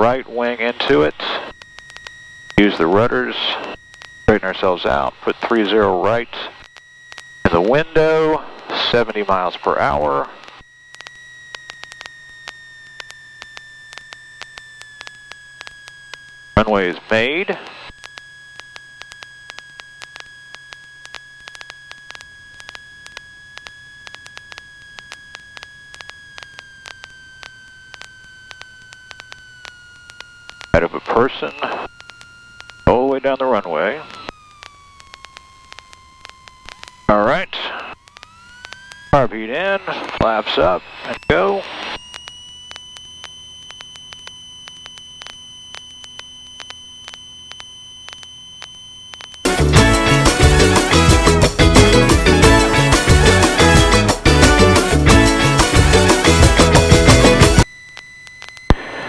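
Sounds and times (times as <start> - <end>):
crackling static clicks: 0.0 - 59.0
high-pitched headset whine: 0.0 - 59.0
high-pitched electronic tone: 45.5 - 59.0.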